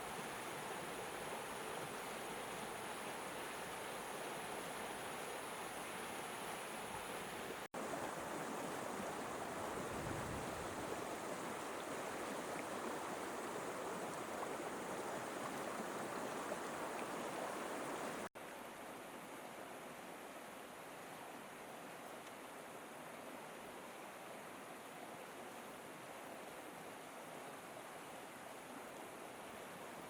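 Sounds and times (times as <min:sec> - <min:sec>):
river water rushing: 0:00.0 - 0:18.6.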